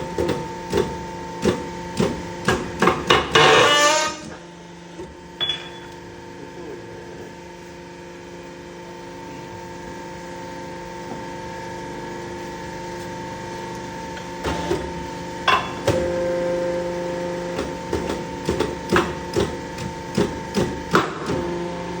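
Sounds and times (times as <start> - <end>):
metal clanks and hammer blows: 5.4 - 6.0, 15.5 - 16.1.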